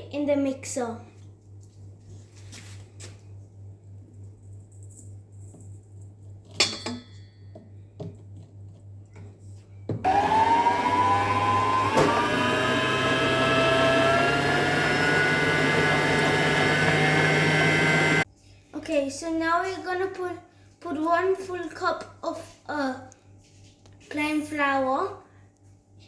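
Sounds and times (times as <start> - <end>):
electric stand mixer motor whine: 10.1 - 18.2.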